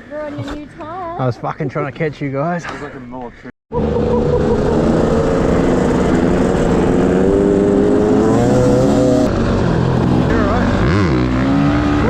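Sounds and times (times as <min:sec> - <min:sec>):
dirt bike engine running: 0:03.8 - 0:12.0.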